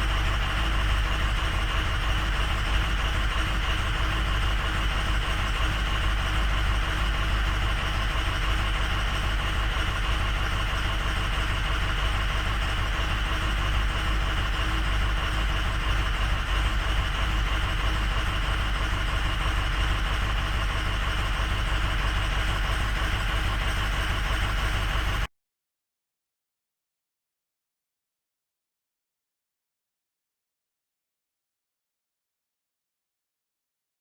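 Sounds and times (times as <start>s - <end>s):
diesel engine idling: 0.0s - 25.3s.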